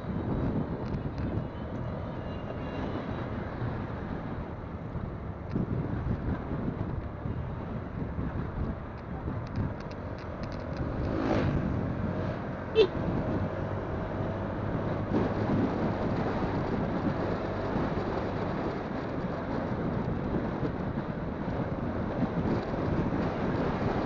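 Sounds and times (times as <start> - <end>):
road noise: 0.0 - 24.0
wind buffeting microphone: 0.0 - 24.0
motorcycle engine: 9.8 - 19.0.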